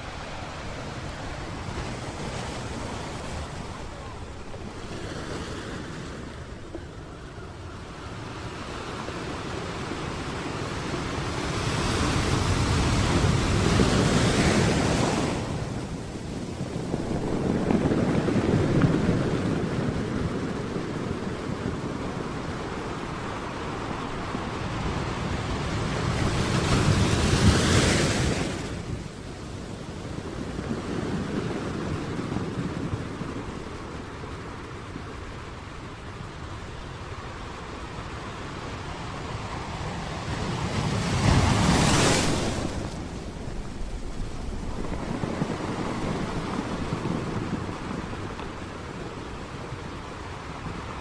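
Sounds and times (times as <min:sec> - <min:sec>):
sea waves crashing on shore: 0:00.0 - 0:51.0
wind on microphone: 0:00.0 - 0:51.0.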